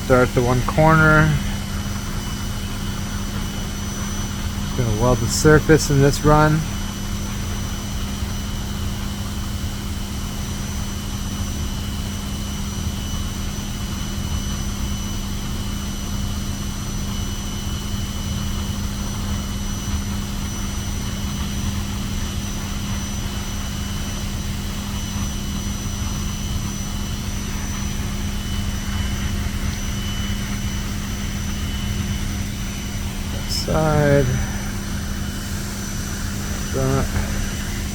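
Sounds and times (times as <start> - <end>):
machine hum with high whine: 0.0 - 37.9.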